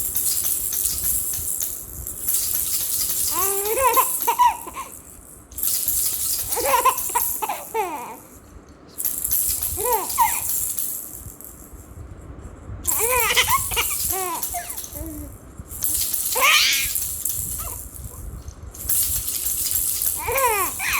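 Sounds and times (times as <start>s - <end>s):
baby rattle shaking: 0.0s - 20.9s
baby laughing: 3.3s - 5.0s, 6.4s - 8.3s, 9.8s - 10.5s, 12.9s - 15.3s, 16.2s - 17.0s, 17.6s - 17.8s, 20.2s - 20.9s.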